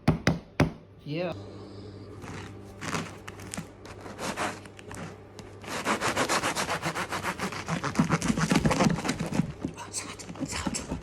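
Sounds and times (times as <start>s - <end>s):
bread knife sawing crust: 3.8s - 9.6s.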